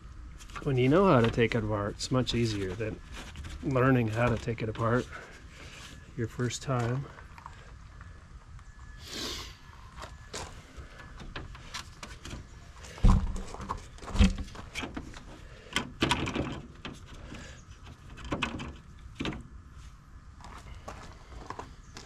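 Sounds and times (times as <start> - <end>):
plastic and metal parts rattling: 11.2 - 19.4.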